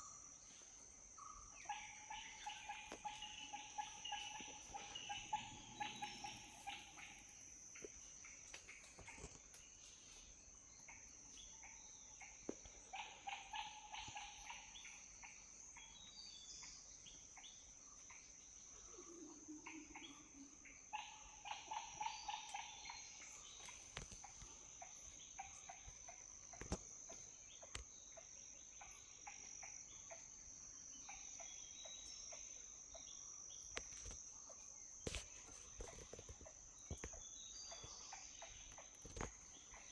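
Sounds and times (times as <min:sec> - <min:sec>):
crickets droning: 0:00.0 - 0:39.9
rapid repeated animal calls: 0:01.3 - 0:07.9, 0:10.9 - 0:15.9, 0:18.8 - 0:30.3.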